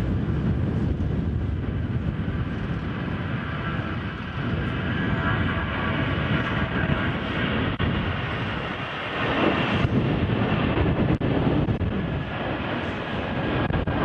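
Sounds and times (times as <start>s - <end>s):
jet engine rumble: 0.0s - 14.0s
wind buffeting microphone: 0.0s - 14.0s.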